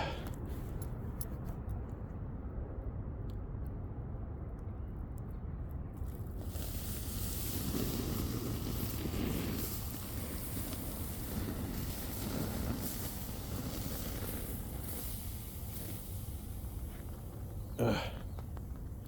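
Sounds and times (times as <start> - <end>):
wind rumble on microphone: 0.0 - 19.0
urine splashing on embers: 6.0 - 19.0
embers hissing: 6.4 - 19.0.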